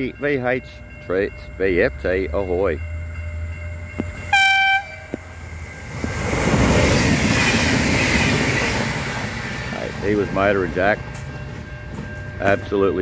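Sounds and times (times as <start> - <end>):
train wheels rumbling on rail: 0.0 - 13.0
train horn blast: 4.2 - 5.4.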